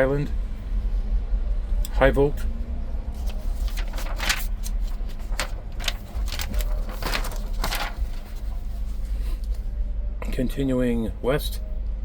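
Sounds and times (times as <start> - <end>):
low rumble: 0.3 - 10.2
paper pages rustling: 3.1 - 9.7.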